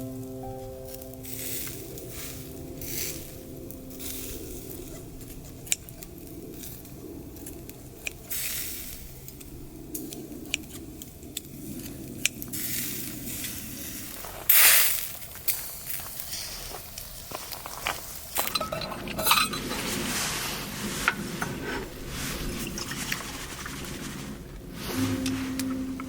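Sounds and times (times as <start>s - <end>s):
food sizzling: 0.2s - 5.3s
short loud hiss: 14.5s - 15.1s.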